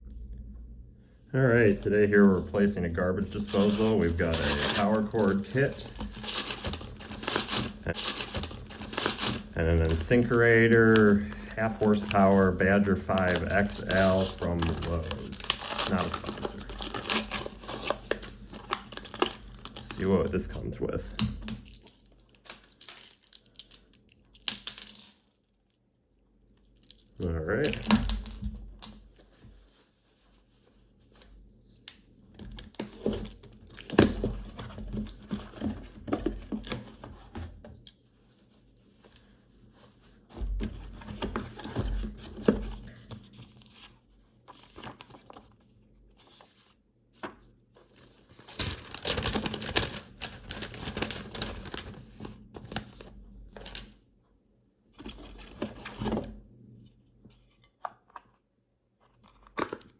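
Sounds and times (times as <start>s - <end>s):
packaging rustling and tearing: 2.6s - 23.8s, 39.1s - 54.0s.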